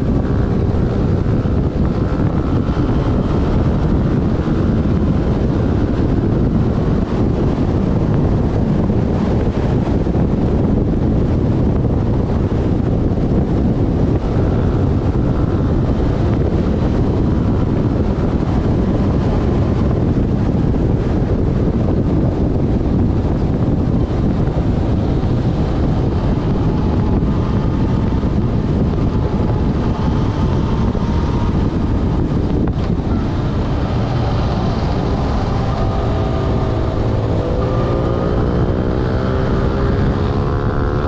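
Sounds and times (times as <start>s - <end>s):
motorcycle engine running: 0.0s - 41.0s
wind rushing over microphone: 0.0s - 41.0s.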